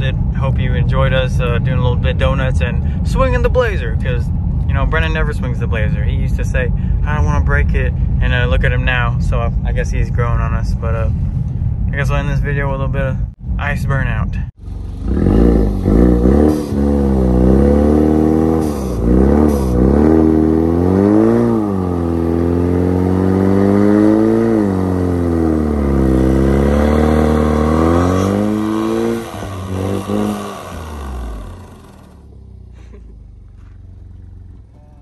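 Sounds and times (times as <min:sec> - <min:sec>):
car engine revving: 0:14.6 - 0:35.0.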